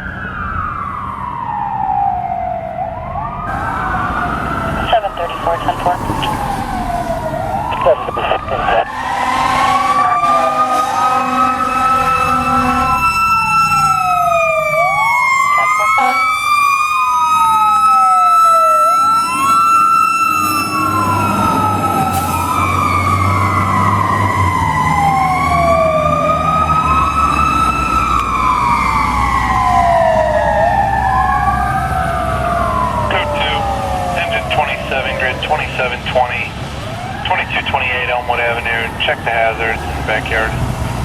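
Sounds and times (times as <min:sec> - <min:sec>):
heavy truck engine rumbling: 0:00.0 - 0:41.0
wailing sirens: 0:00.0 - 0:41.0
air horn: 0:08.9 - 0:13.1, 0:15.6 - 0:16.4.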